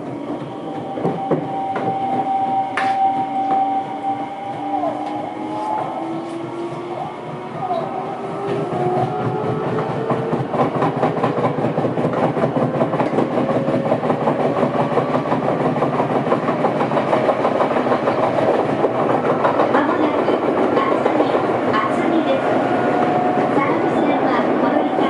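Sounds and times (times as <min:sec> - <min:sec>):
rhythmic wheel pounding: 0:00.0 - 0:25.0
electric train motors whining: 0:17.8 - 0:25.0.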